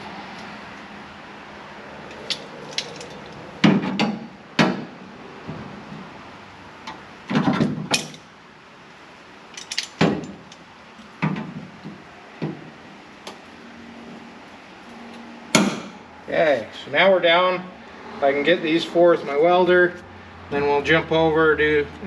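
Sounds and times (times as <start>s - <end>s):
metal tools clanking: 2.1s - 3.5s, 7.4s - 8.3s, 9.5s - 10.7s.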